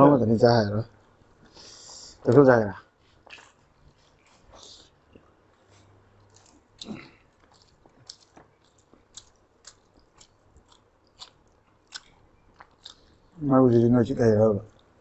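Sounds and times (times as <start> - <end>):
people chewing and lip-smacking: 3.0 - 13.4, 14.7 - 15.0.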